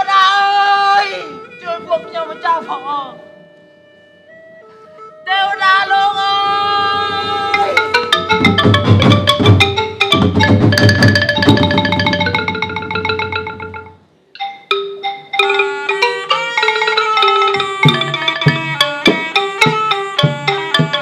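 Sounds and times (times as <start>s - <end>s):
drums: 6.5s - 13.8s, 16.6s - 21.0s
xylophone-like mallet notes: 7.5s - 21.0s.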